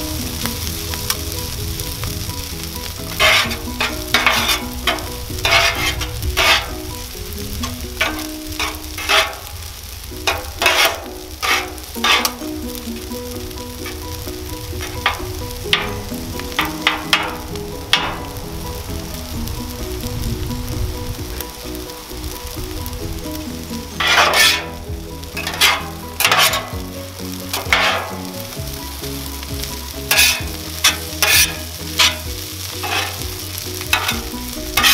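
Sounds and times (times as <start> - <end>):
food sizzling on a griddle: 0.0 - 34.9
metal spatula scraping and clacking: 3.0 - 9.5, 10.2 - 18.4, 23.8 - 28.6, 30.0 - 34.9.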